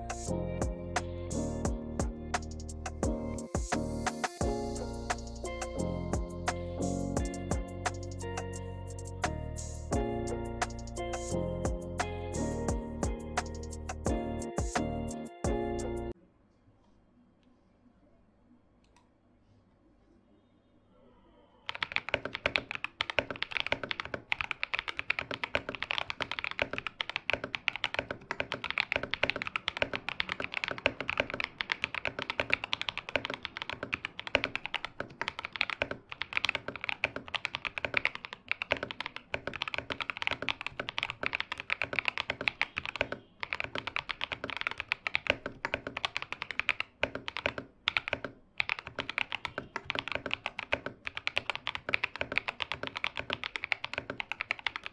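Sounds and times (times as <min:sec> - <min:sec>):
mechanical keyboard typing: 0:21.7 - 0:54.9.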